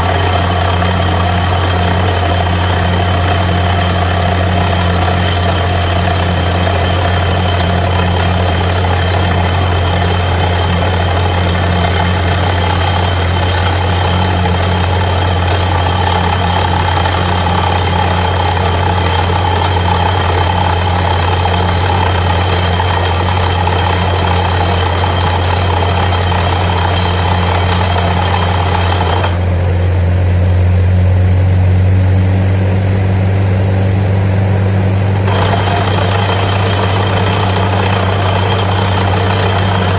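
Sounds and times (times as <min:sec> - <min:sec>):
drilling rig engine hum: 0:00.0 - 0:39.9.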